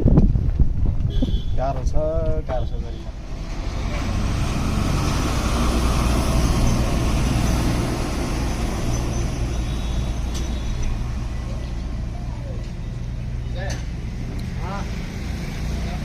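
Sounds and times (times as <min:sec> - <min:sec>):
road and traffic noise: 0:00.0 - 0:16.0
truck engine running: 0:03.1 - 0:14.5.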